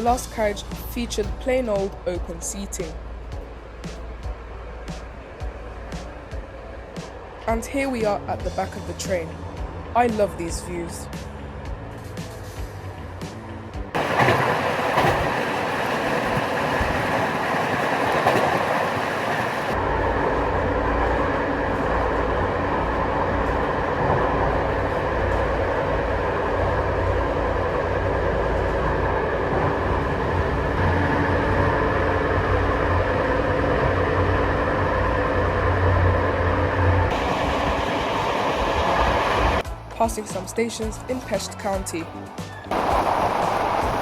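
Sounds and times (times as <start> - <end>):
train wheels rolling on rails: 14.0 - 41.0, 42.1 - 44.0.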